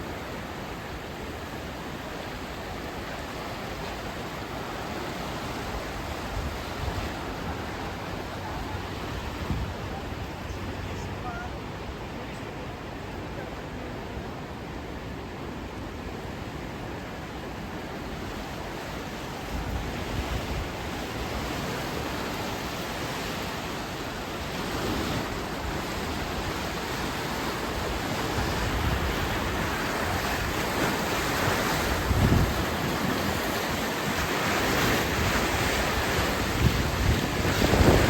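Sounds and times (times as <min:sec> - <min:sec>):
floodwater rushing: 0:00.0 - 0:38.0
wind buffeting microphone: 0:05.4 - 0:11.5, 0:24.5 - 0:38.0.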